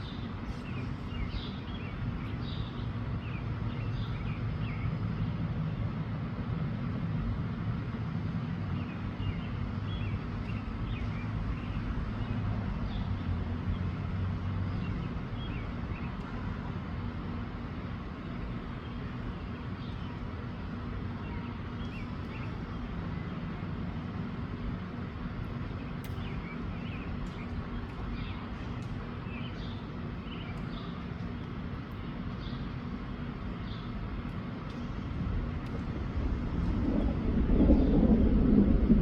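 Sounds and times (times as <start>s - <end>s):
wind buffeting microphone: 34.1s - 39.0s.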